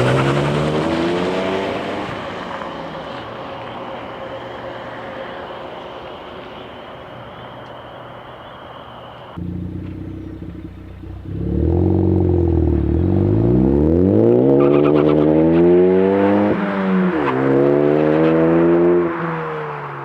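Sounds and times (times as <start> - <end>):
car engine accelerating: 0.0 - 3.1, 9.4 - 20.0.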